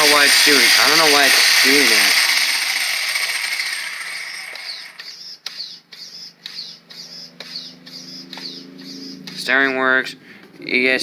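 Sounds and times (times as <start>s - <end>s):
steering servo whirring: 0.0s - 5.1s.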